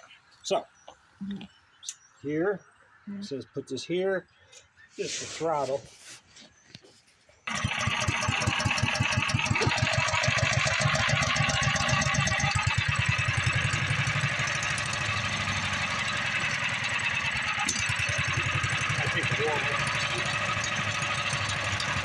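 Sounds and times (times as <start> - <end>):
small engine running at fast idle: 7.5 - 22.0.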